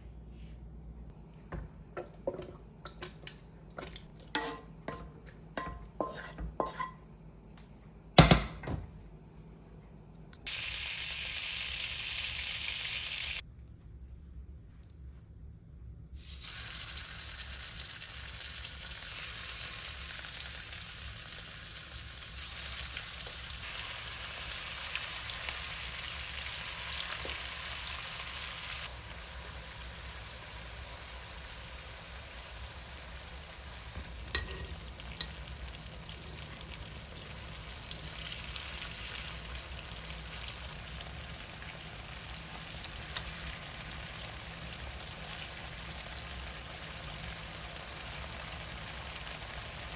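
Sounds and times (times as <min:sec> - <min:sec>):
food sizzling in pan: 0:10.4 - 0:13.4, 0:16.2 - 0:49.9.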